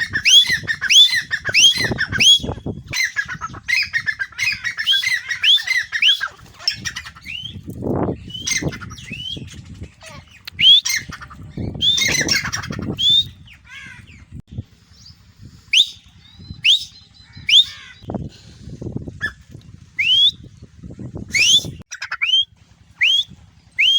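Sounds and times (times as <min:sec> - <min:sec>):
francolins calling: 0:00.0 - 0:18.2
low rumbling noise: 0:07.0 - 0:23.9.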